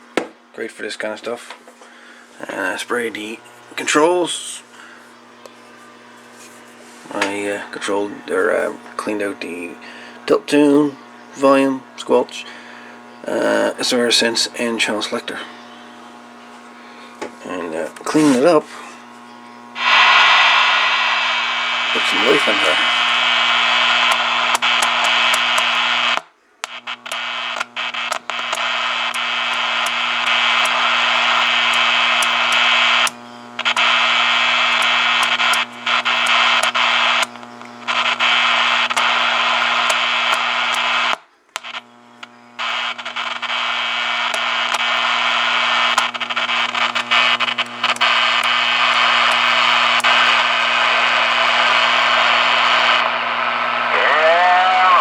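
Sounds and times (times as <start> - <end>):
radio static: 2.4 - 55.0
crackling clicks: 19.3 - 54.0.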